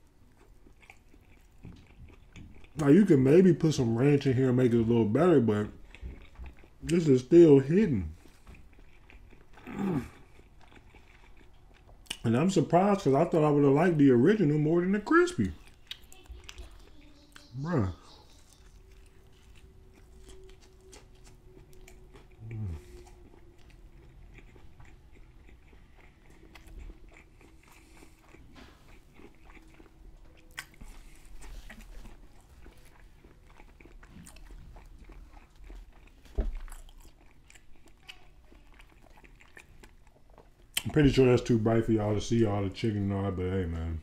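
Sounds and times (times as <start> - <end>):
crunchy chewing: 0.0 - 41.8
person humming: 22.4 - 23.1.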